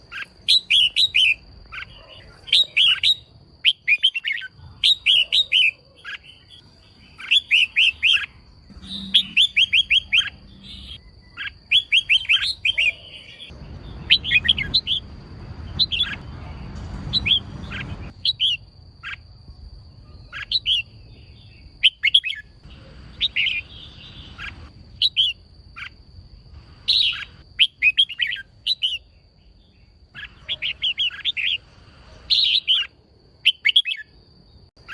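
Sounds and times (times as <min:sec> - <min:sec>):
bird chirping calls: 0:00.0 - 0:34.9
low rushing noise: 0:13.5 - 0:18.9.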